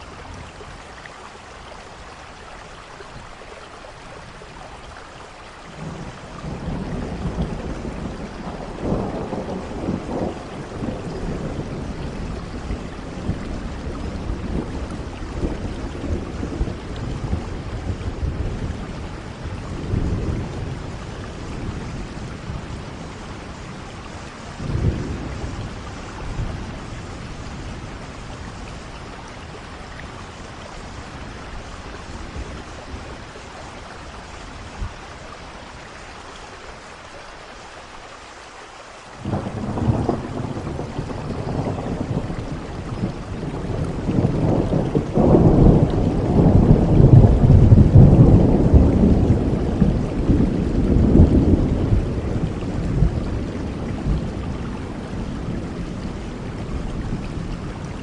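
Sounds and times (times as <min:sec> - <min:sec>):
steady rain: 0:00.0 - 0:58.0
rolling thunder: 0:05.8 - 0:35.3, 0:39.2 - 0:58.0
thunderclap: 0:39.2 - 0:57.6.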